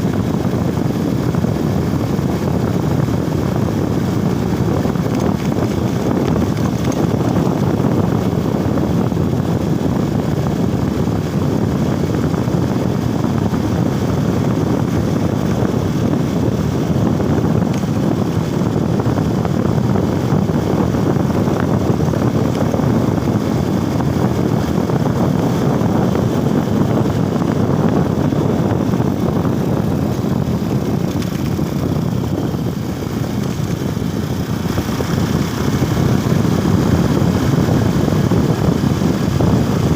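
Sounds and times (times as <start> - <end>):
motorcycle engine: 0.0 - 39.9
wind on microphone: 0.0 - 39.9.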